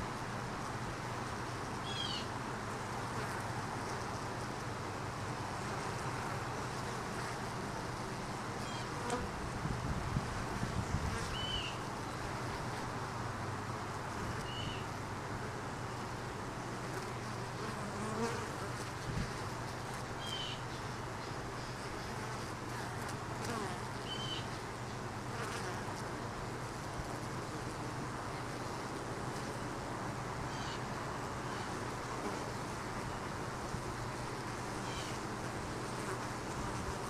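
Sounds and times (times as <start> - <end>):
bees buzzing: 25.2 - 37.0.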